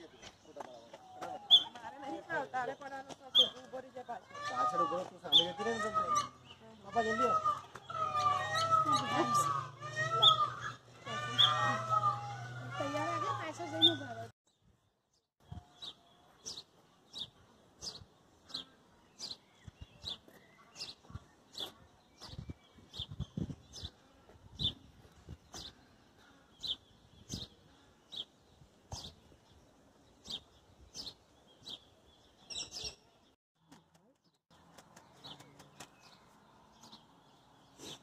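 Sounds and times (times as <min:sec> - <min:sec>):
small bird chirping: 0:15.4 - 0:28.3, 0:28.9 - 0:38.0.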